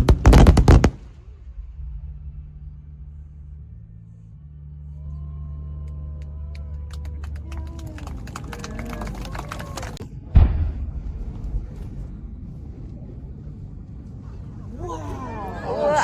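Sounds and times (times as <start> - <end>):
fireworks bangs and crackles: 0.0 - 1.5
low rumble: 0.0 - 16.0.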